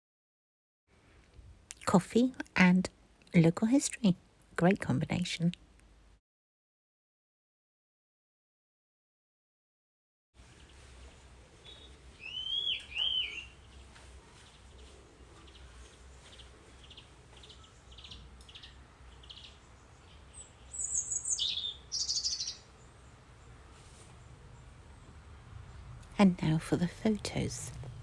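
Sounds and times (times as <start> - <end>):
wild birds singing and calling: 10.6 - 26.0.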